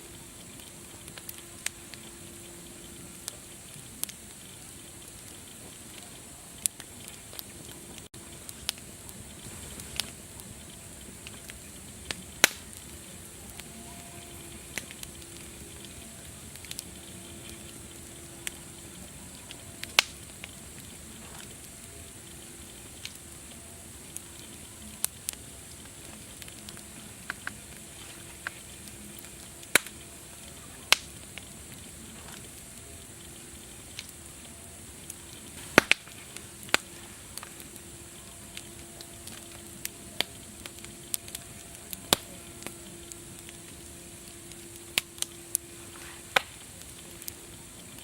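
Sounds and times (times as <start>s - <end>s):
wood fire crackling: 0.0s - 48.0s.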